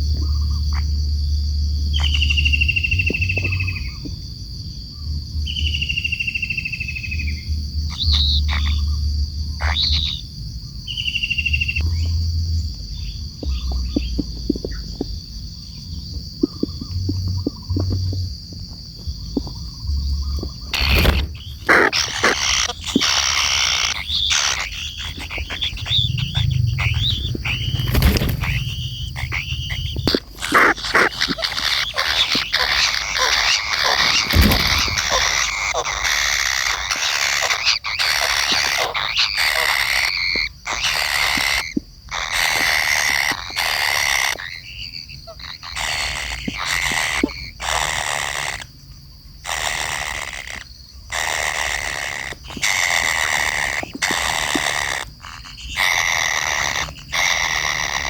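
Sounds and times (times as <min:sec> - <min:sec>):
kingfisher harsh chattering calls: 0:20.7 - 0:48.7, 0:49.4 - 0:58.0.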